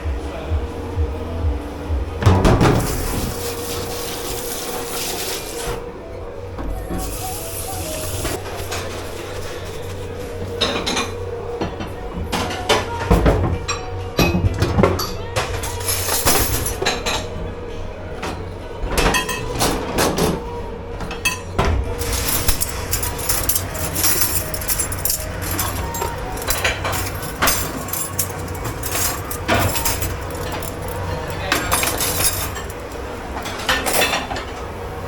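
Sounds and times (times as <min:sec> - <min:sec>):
steady hum: 0:00.0 - 0:04.9
dishes and cutlery clattering: 0:10.5 - 0:17.3, 0:18.2 - 0:20.4, 0:21.0 - 0:34.6.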